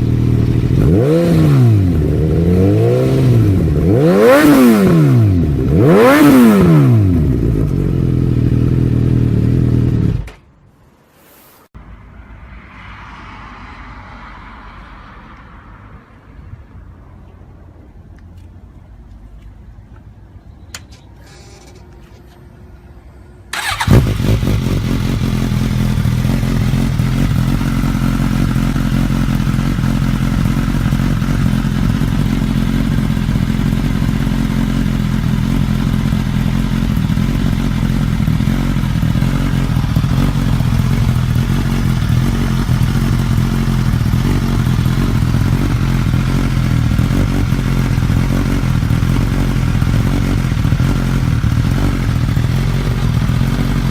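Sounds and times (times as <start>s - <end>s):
motorcycle engine starting and idling: 0.0s - 10.5s, 23.5s - 53.9s.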